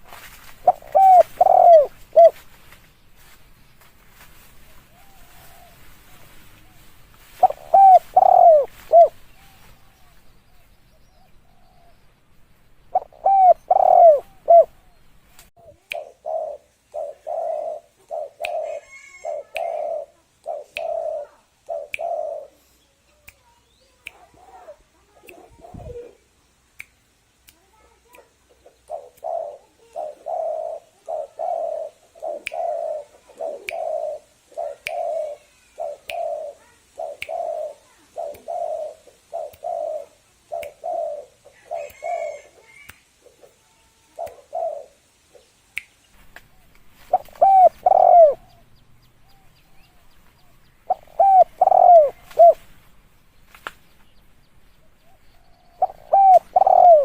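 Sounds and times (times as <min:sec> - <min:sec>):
dove cooing: 0:00.6 - 0:02.4, 0:07.4 - 0:10.1, 0:12.9 - 0:14.9, 0:15.7 - 0:22.6, 0:24.2 - 0:26.2, 0:28.5 - 0:45.0, 0:47.0 - 0:48.6, 0:50.9 - 0:52.6, 0:55.4 - 0:57.0.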